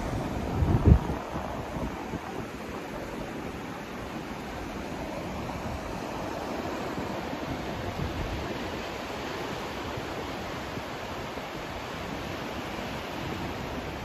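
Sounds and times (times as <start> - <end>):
white noise hiss: 0.0 - 14.0.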